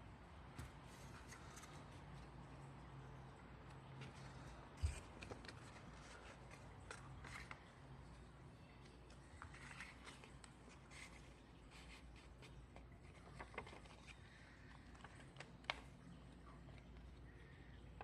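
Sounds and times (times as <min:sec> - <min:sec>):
paper rustling and creasing: 0:00.7 - 0:02.3, 0:03.9 - 0:07.9, 0:09.2 - 0:16.0.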